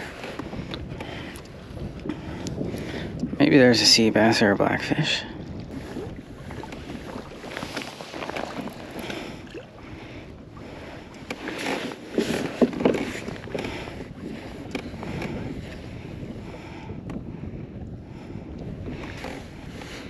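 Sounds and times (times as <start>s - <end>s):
water lapping against kayak hull: 0.0s - 20.0s
wind on microphone: 0.0s - 20.0s
knocks and splashes: 11.3s - 13.9s.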